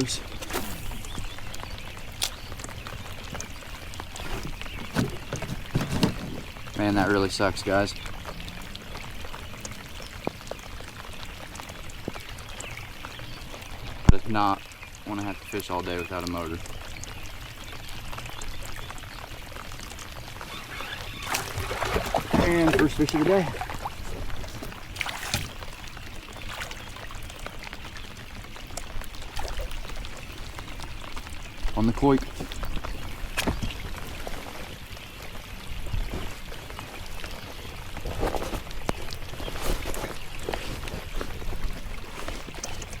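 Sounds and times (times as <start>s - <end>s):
water splashing: 0.0s - 14.4s, 18.1s - 43.0s
water drips ticking: 0.0s - 43.0s.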